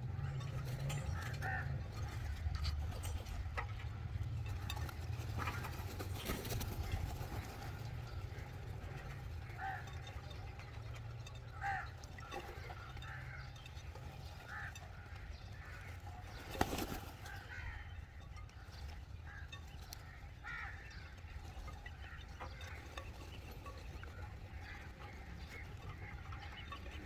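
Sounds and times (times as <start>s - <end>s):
crows cawing: 0.1s - 2.4s, 7.4s - 10.5s, 11.2s - 18.4s, 19.2s - 23.1s, 24.1s - 26.8s.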